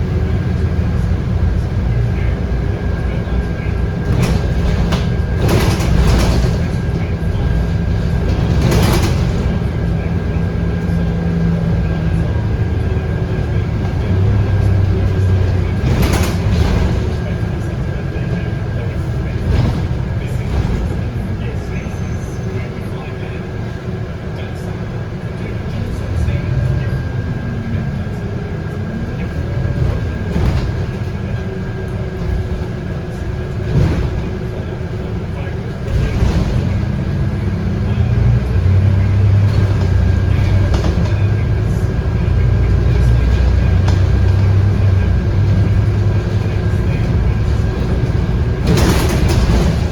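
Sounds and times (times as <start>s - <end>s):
bus diesel engine droning: 0.0s - 49.9s
road rumble: 0.0s - 49.9s.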